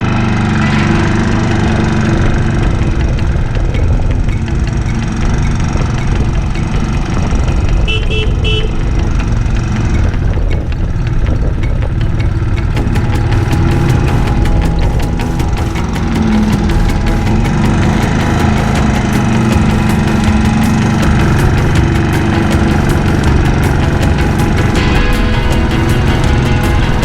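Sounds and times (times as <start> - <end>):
motorcycle engine running: 0.0 - 27.0
horn beeps: 5.2 - 9.9.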